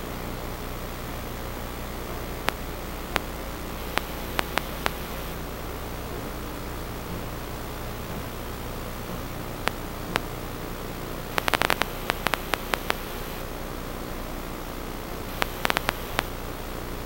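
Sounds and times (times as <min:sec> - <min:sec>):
low hum: 0:00.0 - 0:17.0
static hiss: 0:00.0 - 0:17.0
sharp clicks: 0:03.9 - 0:05.4, 0:11.3 - 0:13.4, 0:15.3 - 0:16.3.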